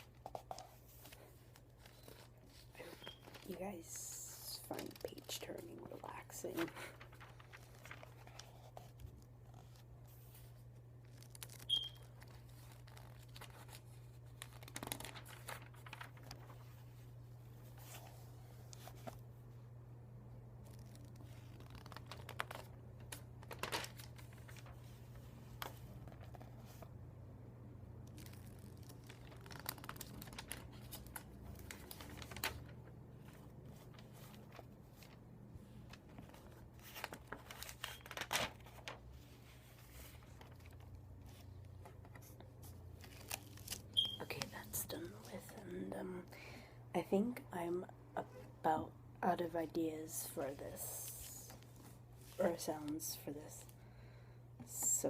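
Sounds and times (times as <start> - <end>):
paper pages turning: 0.0 - 19.3, 20.6 - 26.9, 28.0 - 45.6.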